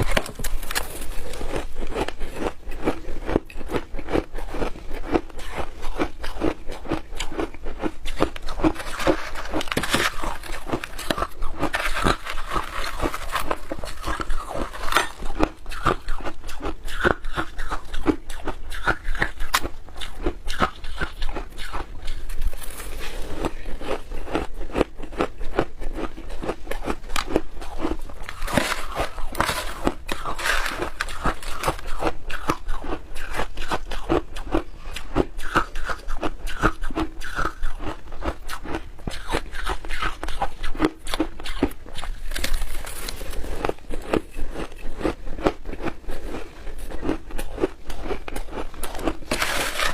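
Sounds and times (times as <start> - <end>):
person crunching shaved ice: 0.0 - 49.9.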